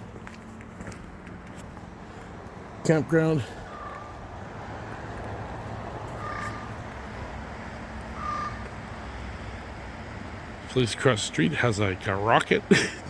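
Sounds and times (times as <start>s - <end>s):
crow cawing: 3.5s - 4.4s, 6.0s - 6.9s, 8.1s - 8.8s.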